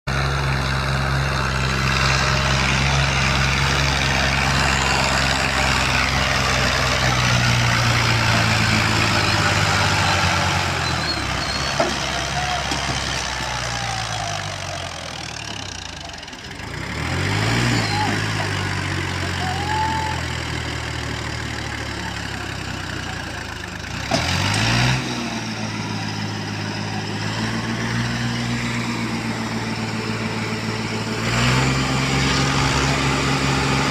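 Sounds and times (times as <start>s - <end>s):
tractor diesel engine revving: 0.1s - 33.9s.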